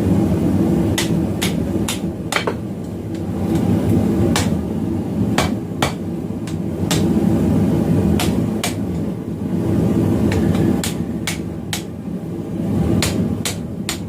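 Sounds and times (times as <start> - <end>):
hammer striking steel on anvil: 1.0 - 2.6, 5.4 - 7.1.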